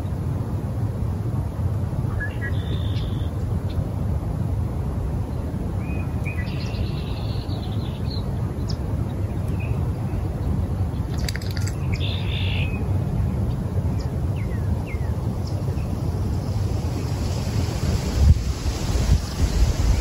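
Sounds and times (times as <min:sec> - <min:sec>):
bird chirps: 0:02.1 - 0:03.3, 0:11.1 - 0:12.8
steady low rumble: 0:03.2 - 0:20.0
bird trill: 0:11.2 - 0:12.8.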